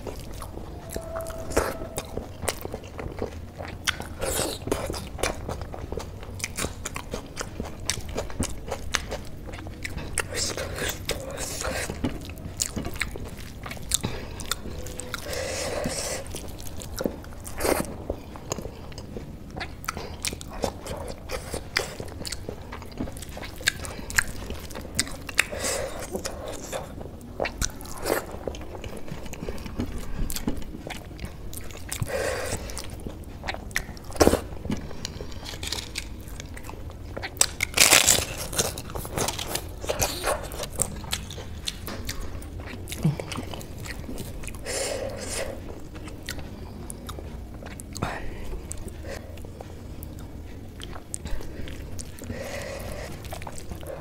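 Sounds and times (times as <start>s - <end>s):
chewing with wet clicks: 0.0s - 54.0s
crunching of crisp food: 0.0s - 54.0s.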